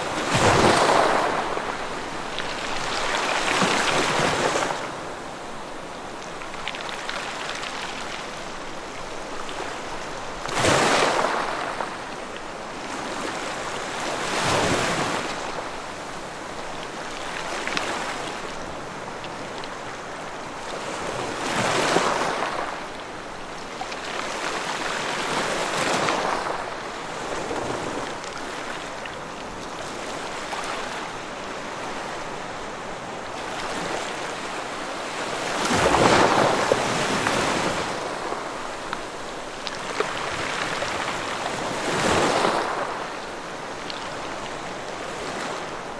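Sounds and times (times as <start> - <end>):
ocean waves breaking: 0.0 - 5.8, 23.9 - 45.9.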